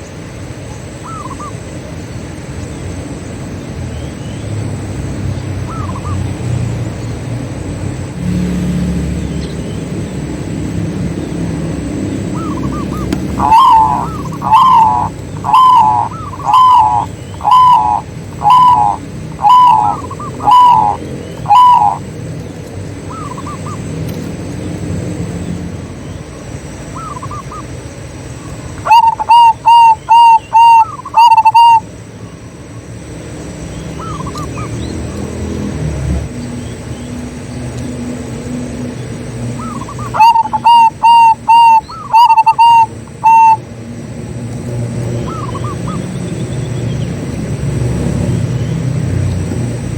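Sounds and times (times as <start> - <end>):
doves cooing: 5.6 - 6.5, 11.5 - 24.1, 26.6 - 31.8, 33.9 - 36.6, 39.2 - 49.9
fainter answering coos: 13.2 - 22.0.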